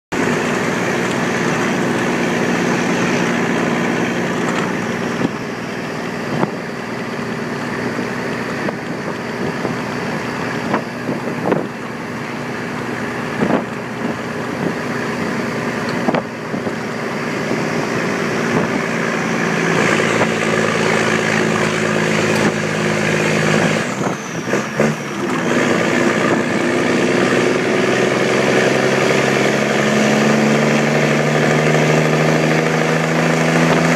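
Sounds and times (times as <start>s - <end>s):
diesel truck engine pulling uphill: 0.1s - 33.9s.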